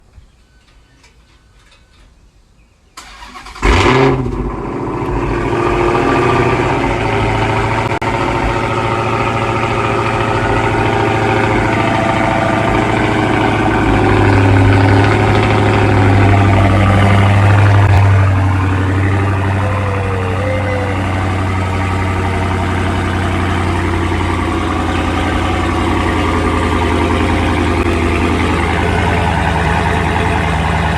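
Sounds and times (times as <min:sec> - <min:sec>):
car engine idling: 0:03.0 - 0:30.9.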